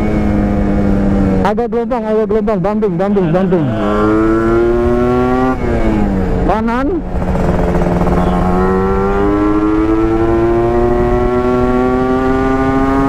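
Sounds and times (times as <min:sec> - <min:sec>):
two-stroke motorcycle engine: 0:04.0 - 0:13.0.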